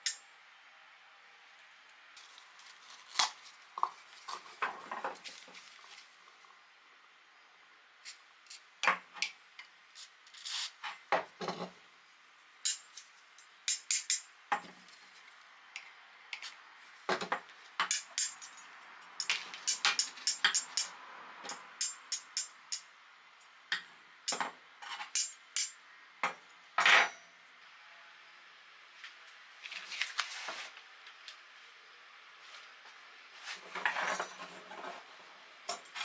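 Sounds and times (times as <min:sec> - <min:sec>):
metal tongs clinking: 0:12.7 - 0:13.0.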